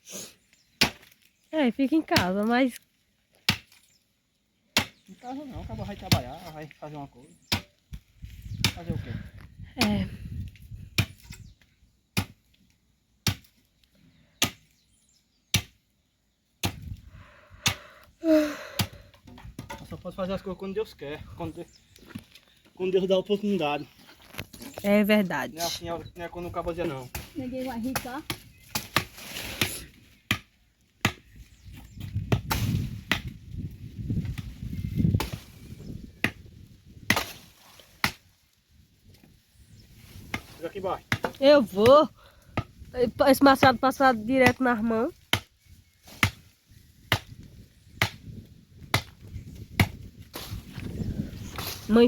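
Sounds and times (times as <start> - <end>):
axe chopping firewood: 0.8 - 1.3, 3.3 - 3.9, 4.7 - 5.1, 7.5 - 7.8, 8.6 - 9.0, 10.9 - 11.4, 12.1 - 12.6, 13.2 - 13.7, 14.4 - 14.8, 15.5 - 15.8, 16.6 - 17.0, 17.6 - 17.8, 18.8 - 20.0, 26.9 - 31.3, 32.2 - 33.4, 35.1 - 35.6, 36.2 - 38.3, 40.2 - 42.8, 44.4 - 44.6, 45.2 - 50.7.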